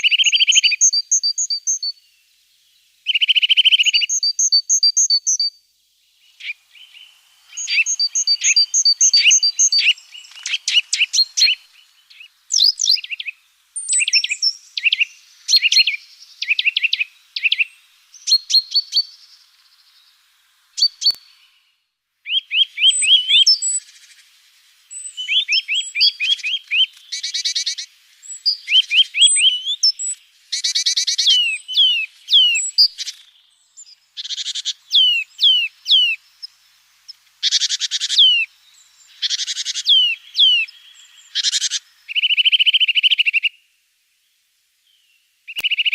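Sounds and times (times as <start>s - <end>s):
songbirds chirping and singing: 6.2s - 21.7s, 22.3s - 43.5s.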